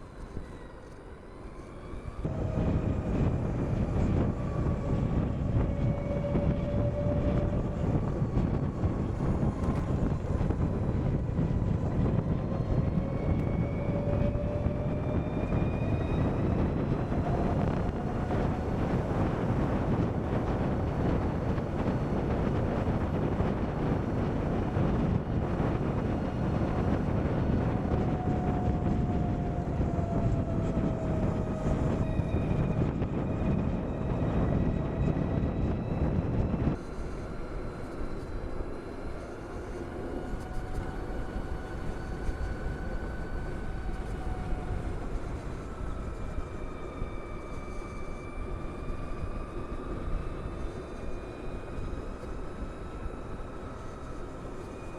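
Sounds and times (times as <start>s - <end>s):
wind rushing over helmet camera: 2.2s - 36.8s.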